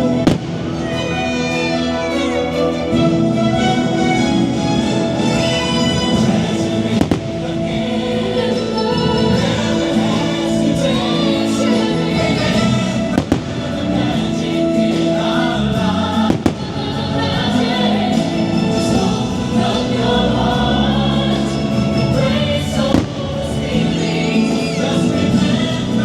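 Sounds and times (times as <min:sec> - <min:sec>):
choir singing: 0:00.0 - 0:26.0
firework bangs: 0:00.1 - 0:01.6, 0:06.9 - 0:07.8, 0:12.6 - 0:14.4, 0:16.2 - 0:18.2, 0:22.8 - 0:24.1.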